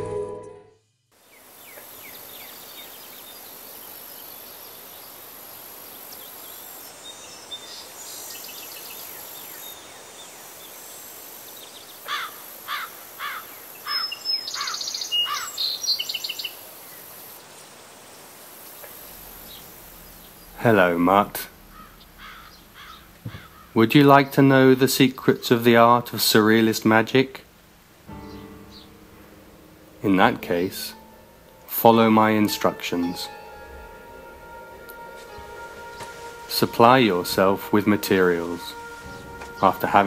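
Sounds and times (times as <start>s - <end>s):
background hiss: 1.1s - 40.0s
bird calling quick falling notes: 32.4s - 40.0s.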